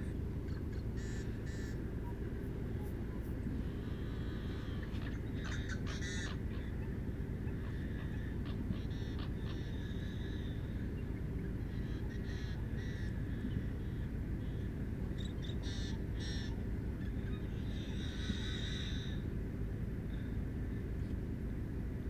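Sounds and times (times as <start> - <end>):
steady low rumble: 0.0 - 5.9
birds giving harsh crow-like calls: 4.2 - 6.8.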